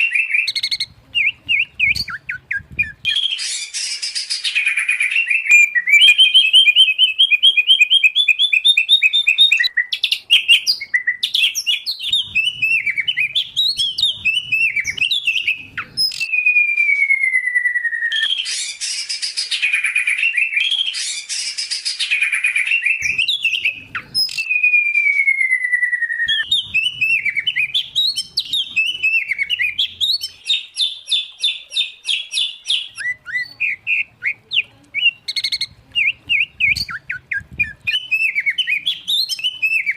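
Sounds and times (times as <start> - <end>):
songbirds singing: 0.0 - 24.8, 25.4 - 39.9.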